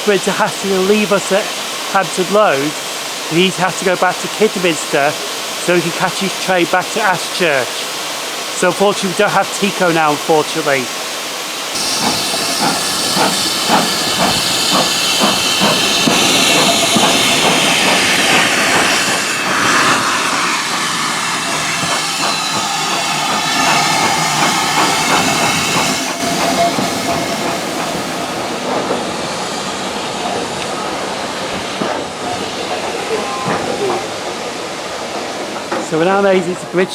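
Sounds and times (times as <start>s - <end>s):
steam hissing: 0.0s - 36.9s
regular exhaust or wheel beat: 11.8s - 28.9s.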